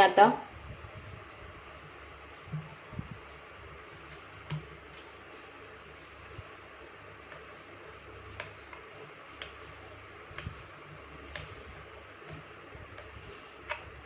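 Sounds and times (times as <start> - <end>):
low steady hum: 0.0 - 14.0
soft handling thumps: 1.1 - 3.3.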